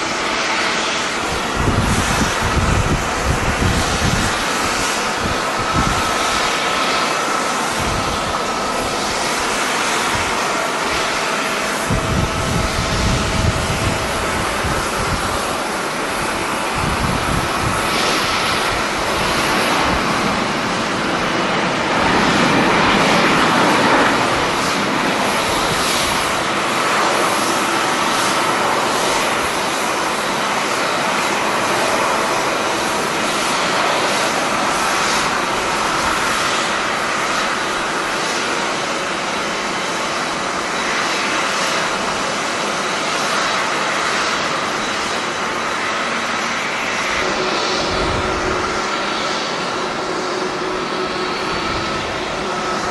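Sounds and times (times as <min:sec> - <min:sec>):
jet engines running: 0:00.0 - 0:52.9.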